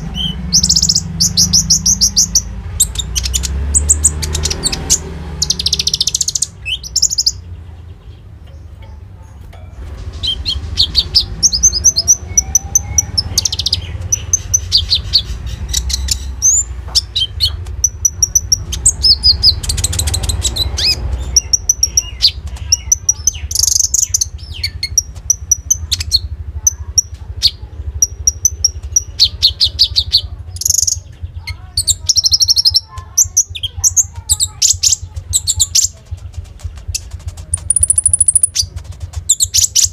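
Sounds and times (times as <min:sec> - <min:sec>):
songbird trilling and chirping: 0:00.0 - 0:39.9.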